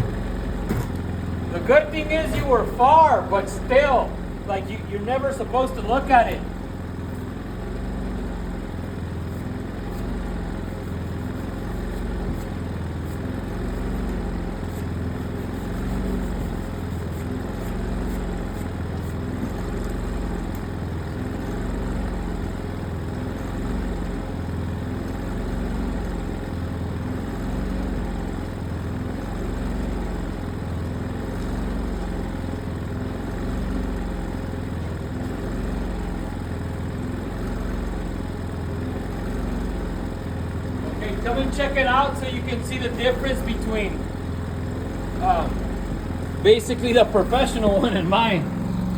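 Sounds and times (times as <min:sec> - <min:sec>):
engine idling: 0:00.0 - 0:48.9.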